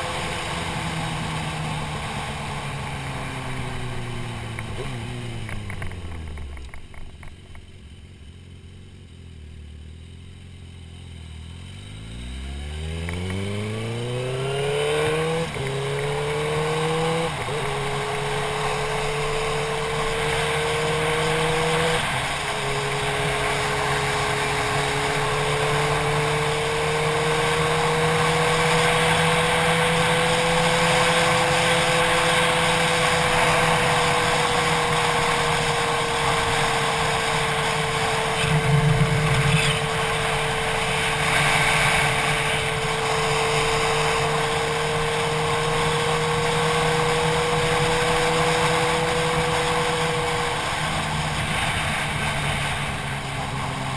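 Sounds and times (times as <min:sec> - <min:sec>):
motorcycle engine cruising: 0:00.0 - 0:53.9
wind rushing over camera: 0:34.4 - 0:44.4.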